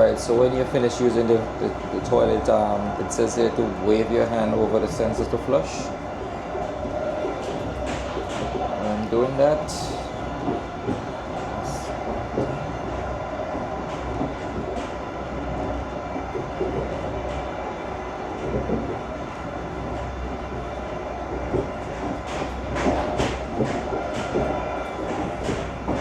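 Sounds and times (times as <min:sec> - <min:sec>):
train rumble and rushing: 0:00.0 - 0:26.0
wheel and carriage clicks and knocks: 0:21.5 - 0:26.0.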